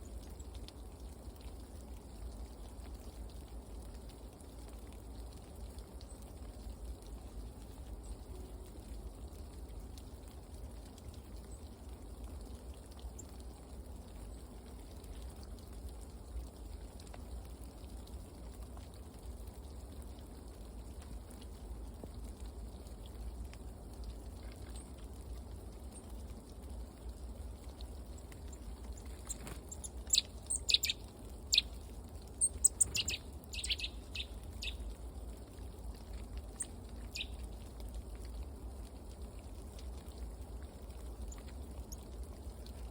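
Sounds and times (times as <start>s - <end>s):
low background rumble: 0.0s - 42.9s
small birds chirping: 28.0s - 35.0s, 36.5s - 37.5s.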